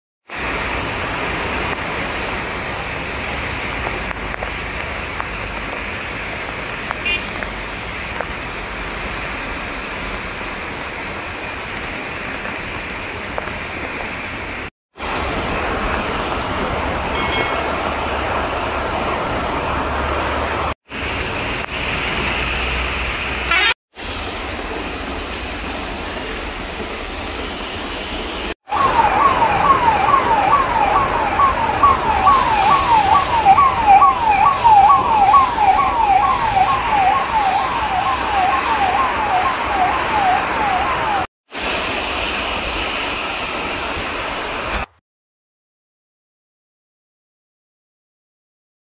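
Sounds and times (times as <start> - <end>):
heavy rain on road: 0.3 - 44.9
ambulance siren yelping: 28.7 - 41.3.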